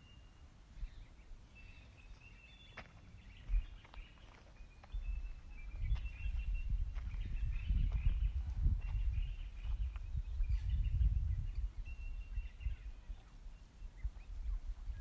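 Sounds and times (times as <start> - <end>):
birds chirping and whistling: 0.0 - 15.0
wind rumble on microphone: 3.2 - 15.0.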